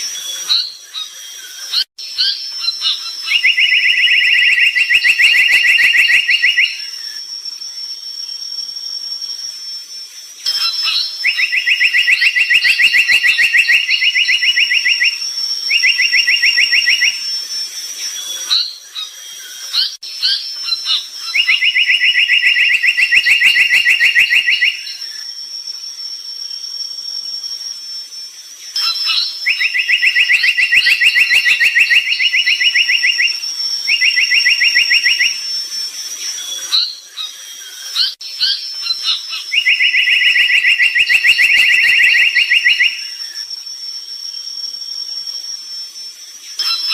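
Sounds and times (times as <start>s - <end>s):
bird trilling and chirping: 0.2s - 7.1s, 18.1s - 25.2s, 36.3s - 43.4s.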